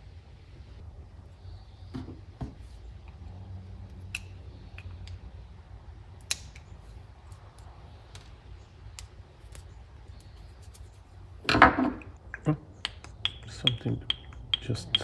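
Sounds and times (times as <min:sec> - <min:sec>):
low steady hum: 0:00.0 - 0:15.0
small tools clicking: 0:13.0 - 0:15.0.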